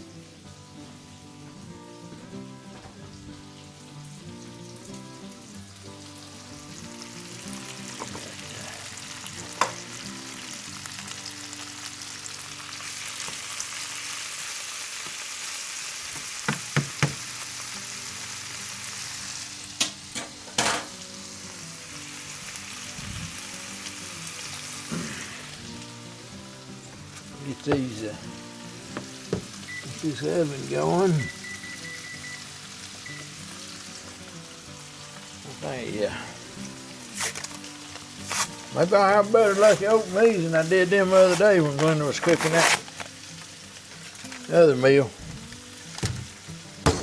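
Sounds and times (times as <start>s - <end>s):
chicken sizzling in a pan: 0.0s - 47.0s
sharp knocks of pan: 16.5s - 17.3s, 46.0s - 47.0s.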